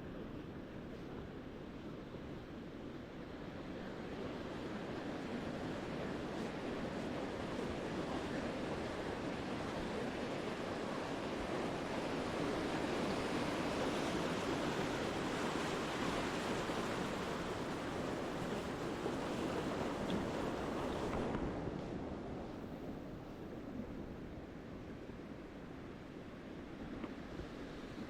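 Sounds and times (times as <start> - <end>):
ocean surf breaking on beach: 3.4 - 22.6.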